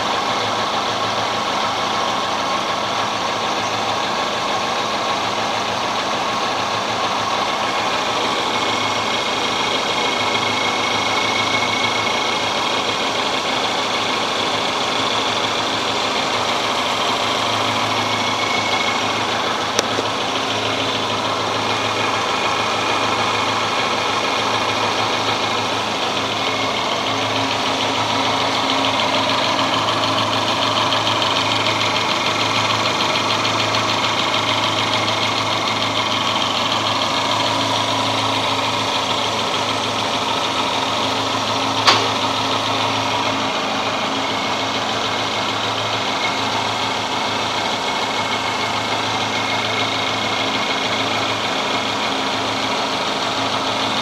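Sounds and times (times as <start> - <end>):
car engine idling: 0.0 - 54.0
sharp click: 41.8 - 42.2.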